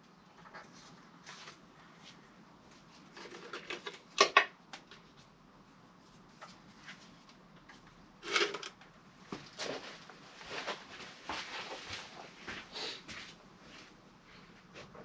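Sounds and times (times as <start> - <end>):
tools and parts clicking: 8.2 - 8.8.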